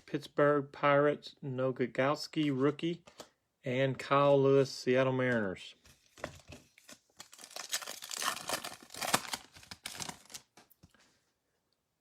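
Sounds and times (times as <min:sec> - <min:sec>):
foil wrapper crinkling and tearing: 0:06.8 - 0:10.7.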